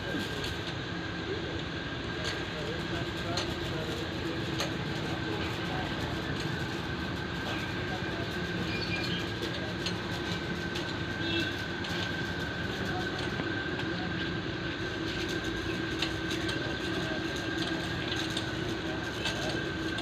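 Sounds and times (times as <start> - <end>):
machine running with whine: 0.0 - 20.0.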